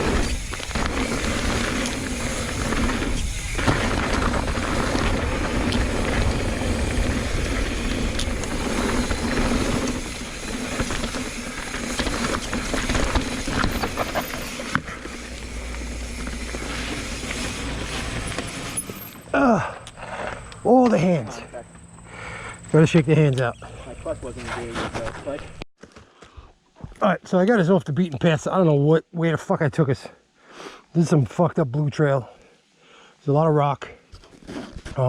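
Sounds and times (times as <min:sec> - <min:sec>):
bike rattling and clicking: 0:00.0 - 0:19.3
tyres on dirt: 0:00.0 - 0:26.1.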